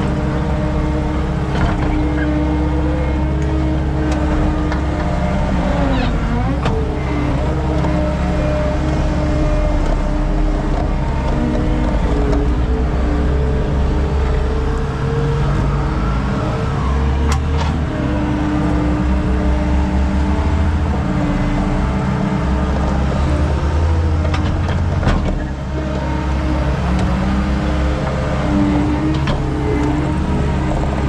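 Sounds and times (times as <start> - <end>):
skid steer engine running: 0.0 - 31.0.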